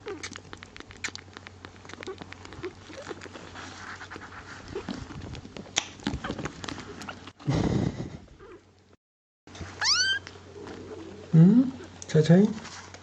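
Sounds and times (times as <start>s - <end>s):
faint kitten squeaks: 0.0s - 3.5s, 9.6s - 10.3s.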